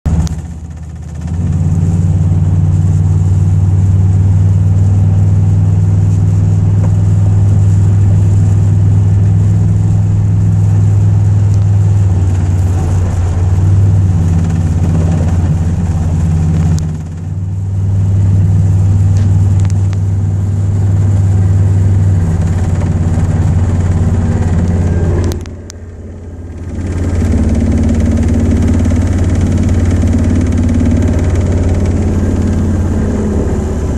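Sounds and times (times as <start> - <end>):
pickup truck engine drone: 0.0 - 33.9
rattle: 0.1 - 2.3, 6.0 - 17.6, 21.0 - 33.9.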